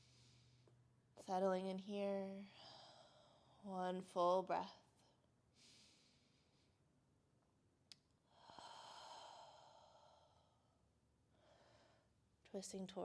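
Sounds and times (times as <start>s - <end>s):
person breathing softly: 0.0s - 0.8s, 2.5s - 3.7s, 5.5s - 6.8s, 8.2s - 12.2s.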